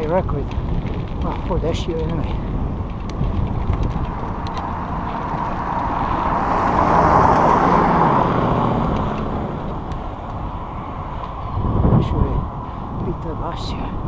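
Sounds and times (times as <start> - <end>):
motor vehicle passing by: 3.2 - 13.6.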